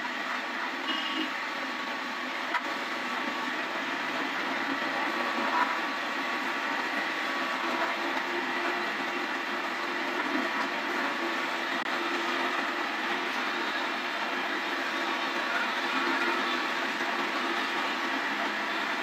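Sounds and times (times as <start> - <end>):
lathe humming: 1.4 - 19.0.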